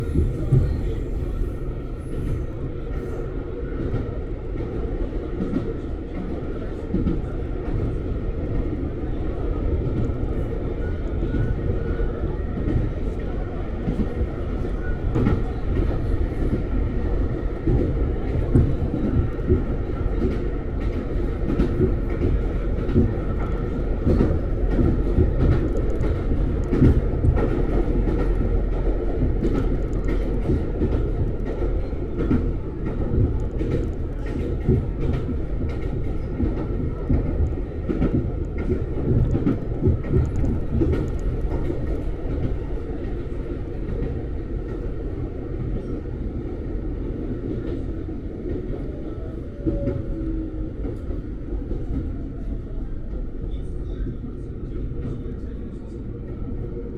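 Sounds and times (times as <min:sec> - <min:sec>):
train wheels rumbling on rails: 0:00.0 - 0:56.9
sharp clicks from track: 0:17.8 - 0:28.5, 0:29.2 - 0:42.6.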